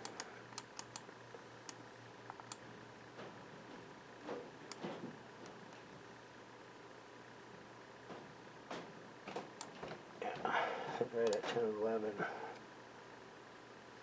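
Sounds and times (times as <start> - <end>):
computer clicks: 0.0 - 2.6, 11.2 - 11.5.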